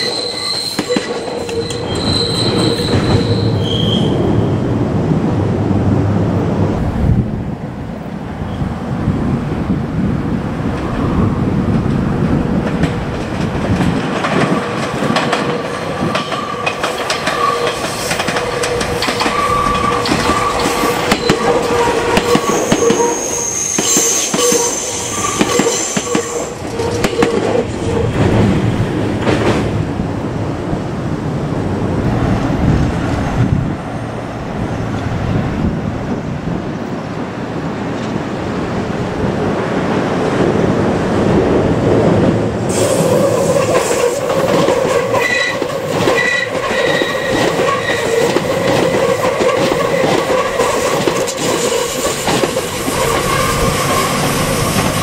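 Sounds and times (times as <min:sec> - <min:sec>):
wheels clacking over rail joints: 0:00.0 - 0:03.6, 0:11.6 - 0:30.0, 0:41.6 - 0:55.0
high wheel squeal: 0:00.0 - 0:04.4, 0:16.2 - 0:28.2, 0:45.1 - 0:48.8, 0:51.4 - 0:55.0.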